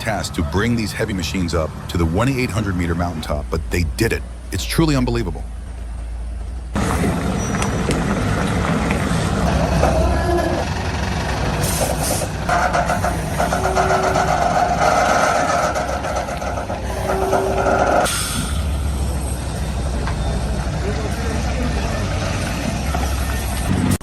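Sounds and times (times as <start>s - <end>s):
truck engine rumbling: 0.0s - 24.0s
air hisses: 16.9s - 18.8s.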